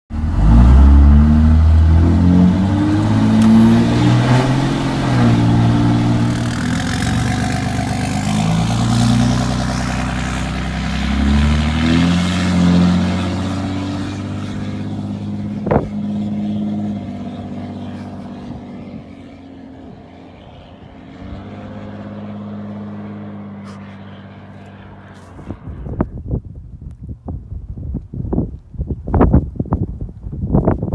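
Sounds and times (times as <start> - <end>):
diesel truck engine revving: 0.1 - 26.0.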